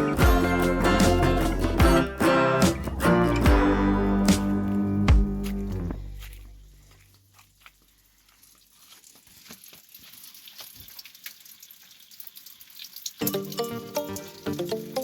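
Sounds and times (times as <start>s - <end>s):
music: 0.0s - 6.2s, 13.2s - 15.0s.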